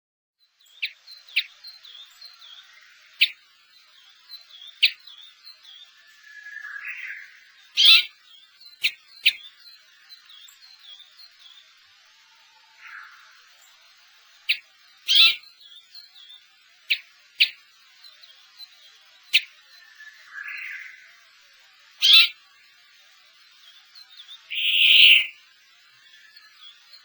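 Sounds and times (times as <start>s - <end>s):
finches calling: 0.6s - 27.0s.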